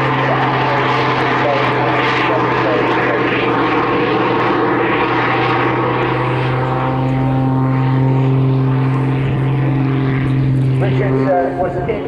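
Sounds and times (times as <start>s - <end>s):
airplane engines droning: 0.0s - 12.0s
steady higher tones: 4.7s - 12.0s.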